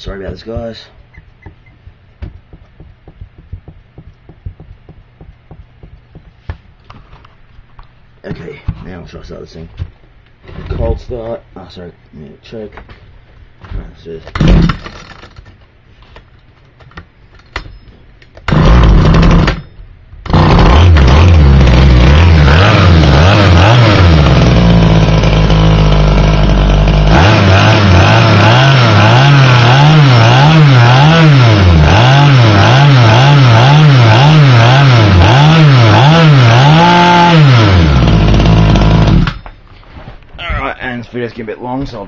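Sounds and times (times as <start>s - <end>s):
small two-stroke engine running: 20.3s - 39.4s.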